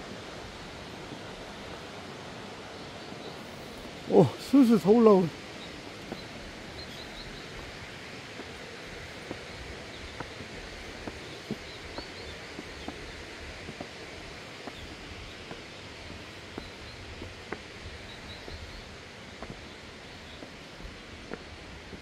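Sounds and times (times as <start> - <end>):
steady outdoor hiss: 0.0 - 22.0
faint bird chirps: 2.8 - 7.6, 18.0 - 18.9
footsteps on a path: 3.4 - 22.0.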